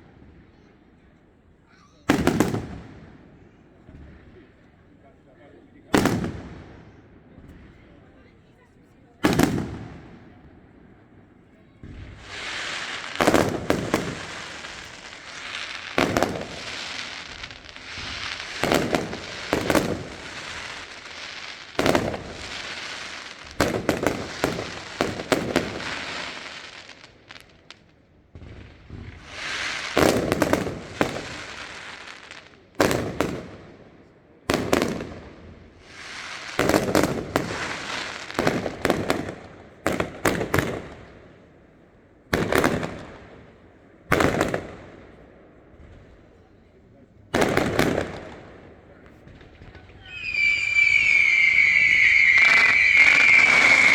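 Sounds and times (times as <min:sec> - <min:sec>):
firework shells bursting: 0:49.2 - 0:53.9
fizzing firework haze: 0:50.0 - 0:53.9.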